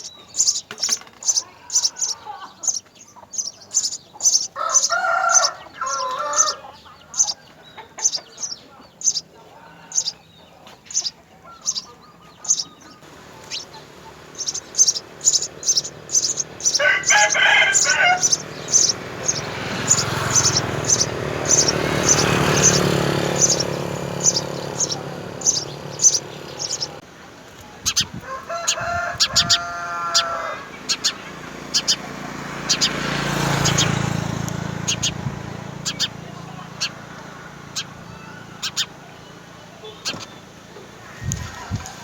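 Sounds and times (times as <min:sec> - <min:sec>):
sparrows chirping: 0:00.0 - 0:42.0
rooster crowing: 0:04.4 - 0:07.6, 0:12.4 - 0:27.0, 0:28.2 - 0:31.2, 0:41.0 - 0:42.0.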